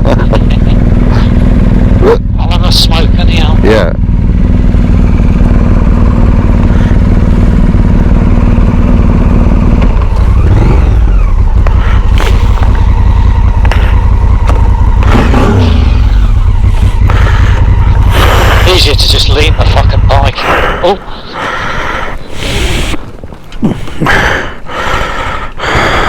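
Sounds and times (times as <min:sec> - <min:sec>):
motorcycle engine idling: 0:00.0 - 0:26.0
knocks and clatters: 0:13.6 - 0:15.1.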